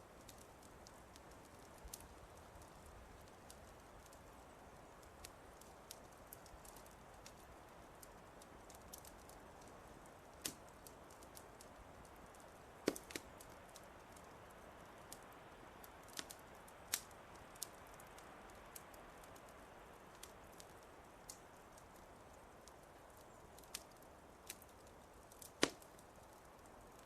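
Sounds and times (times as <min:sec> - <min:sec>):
faint steady hiss: 0:00.0 - 0:27.0
wood fire crackling: 0:00.0 - 0:27.0.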